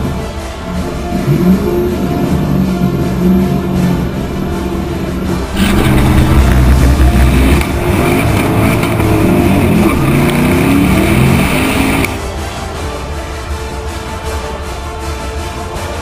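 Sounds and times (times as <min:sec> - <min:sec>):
music: 0:00.0 - 0:16.0
car accelerating at full throttle: 0:00.7 - 0:12.2.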